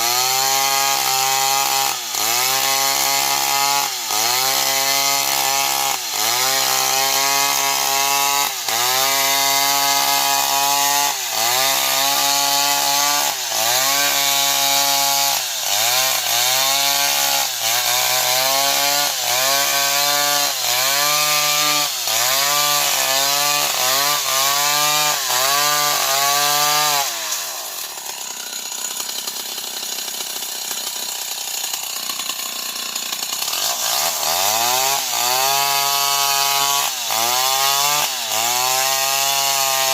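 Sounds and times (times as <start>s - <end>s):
chainsaw cutting at high revs: 0.0s - 39.9s.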